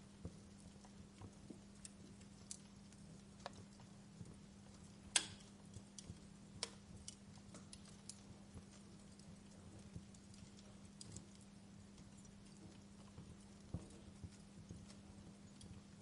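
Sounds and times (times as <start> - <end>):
faint low hum: 0.0 - 16.0
wood fire crackling: 0.0 - 16.0
sharp pops of fire: 1.8 - 12.4.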